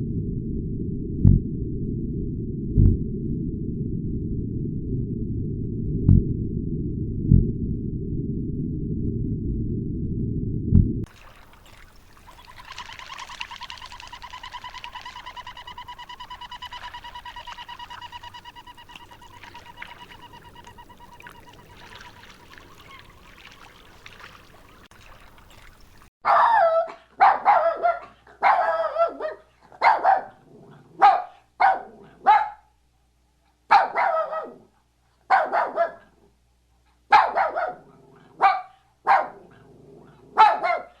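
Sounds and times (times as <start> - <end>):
animal trilling tone: 11.9 - 24.9
dog barking: 26.2 - 32.7, 33.7 - 34.7, 35.3 - 36.3, 37.0 - 41.0.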